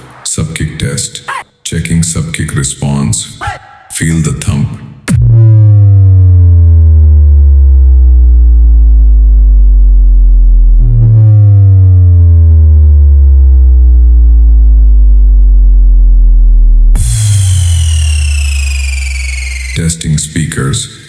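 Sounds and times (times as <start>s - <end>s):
sub-bass boom falling in pitch: 5.1s - 19.8s.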